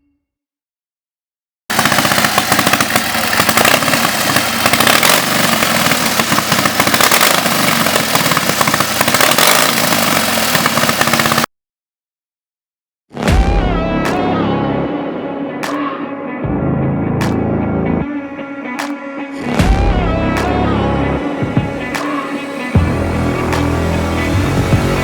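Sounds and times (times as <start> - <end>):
motorcycle engine running: 1.7 - 11.5, 22.8 - 25.0.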